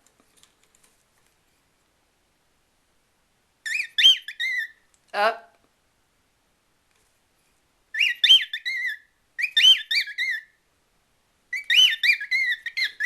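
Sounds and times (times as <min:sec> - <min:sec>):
cockatiel whistling: 0:03.6 - 0:04.8, 0:07.9 - 0:10.5, 0:11.5 - 0:13.0.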